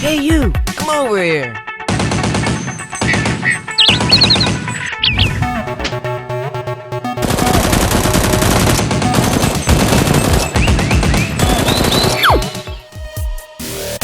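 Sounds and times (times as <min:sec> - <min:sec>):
background music: 0:00.0 - 0:14.0
rapid automatic gunfire: 0:01.9 - 0:04.7, 0:07.1 - 0:12.6
steeply falling whistle: 0:11.7 - 0:12.6.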